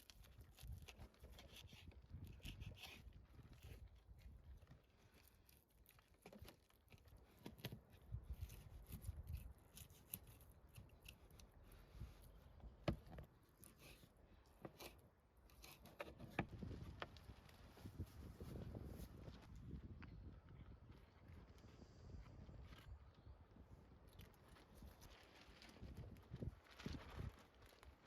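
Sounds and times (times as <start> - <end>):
faint handling clicks and rustles: 0.0 - 19.5.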